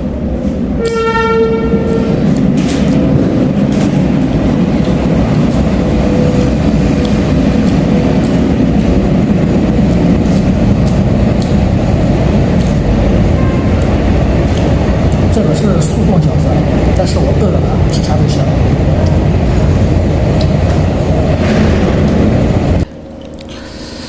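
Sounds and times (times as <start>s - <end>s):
train running past: 0.0s - 24.0s
train horn blast: 0.8s - 2.9s, 13.2s - 14.3s
wheels clicking over rails: 1.8s - 23.6s.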